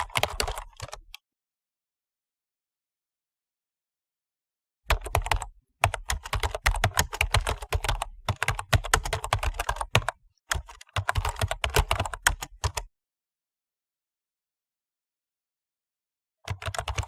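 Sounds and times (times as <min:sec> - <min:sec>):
computer keyboard typing: 0:00.0 - 0:01.2, 0:04.9 - 0:12.9, 0:16.5 - 0:17.0.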